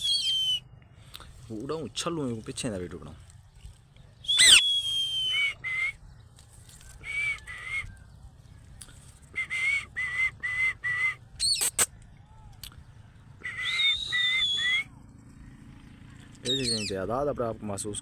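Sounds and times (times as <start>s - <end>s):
parrot whistling: 0.0s - 0.6s, 4.3s - 5.9s, 13.4s - 14.8s, 16.5s - 16.8s.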